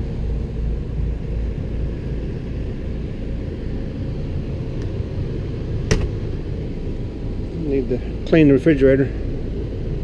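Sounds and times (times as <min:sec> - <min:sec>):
air conditioner drone: 0:00.0 - 0:10.0.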